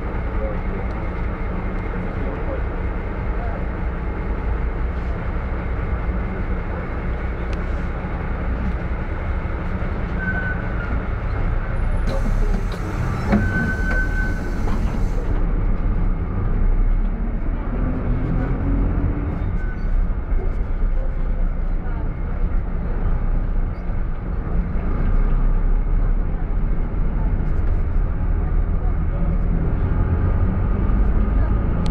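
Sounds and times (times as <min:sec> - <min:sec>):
minibus engine rumble: 0:00.0 - 0:31.9
brake whistle: 0:13.1 - 0:14.7.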